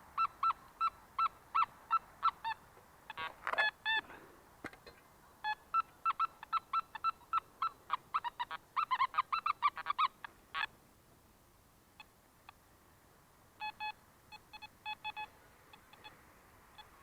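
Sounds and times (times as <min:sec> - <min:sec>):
metal detector beeps: 0:13.6 - 0:16.1.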